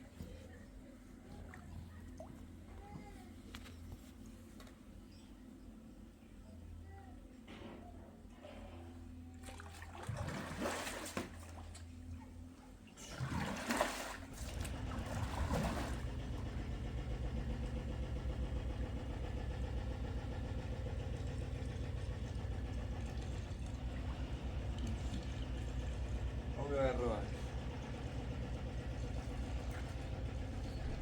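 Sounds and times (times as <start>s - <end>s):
engine starting and running: 13.0s - 31.0s.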